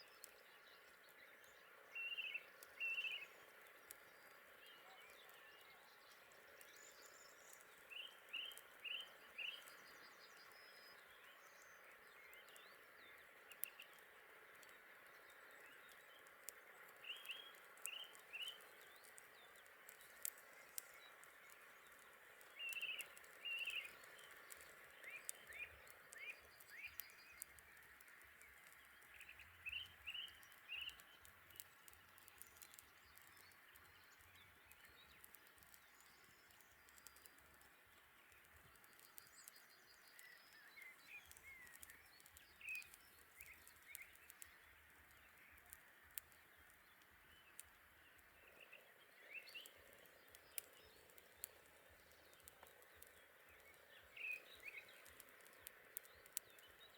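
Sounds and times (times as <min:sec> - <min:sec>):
songbird chirping: 0:00.0 - 0:56.9
sharp clicks: 0:40.2 - 0:47.7, 0:49.6 - 0:53.8, 0:54.4 - 0:56.8.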